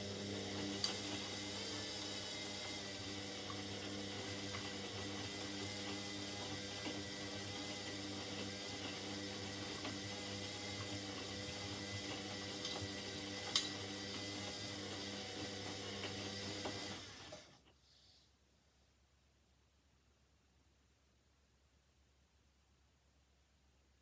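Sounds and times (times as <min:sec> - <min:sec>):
washing machine humming: 0:00.0 - 0:17.6.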